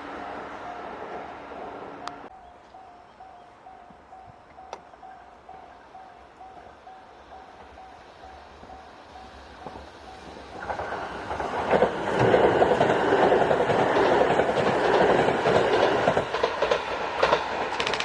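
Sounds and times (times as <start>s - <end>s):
crossing warning bell: 0.0s - 11.5s
train wheels rushing on rails: 3.8s - 18.0s
wheels clacking over rail joints: 7.3s - 18.0s.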